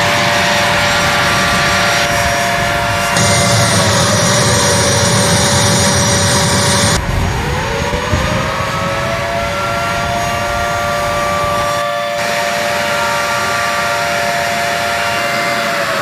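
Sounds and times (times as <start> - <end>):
high hiss: 0.0 - 7.5
jet engines whining: 0.0 - 16.0.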